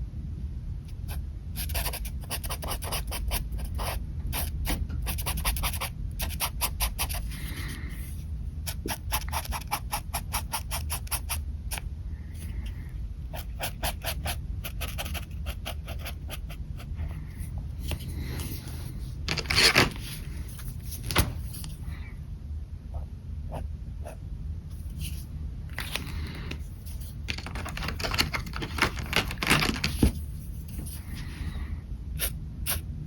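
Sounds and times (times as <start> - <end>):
pen scratching on paper: 1.1 - 8.1, 8.7 - 11.8, 13.3 - 16.9.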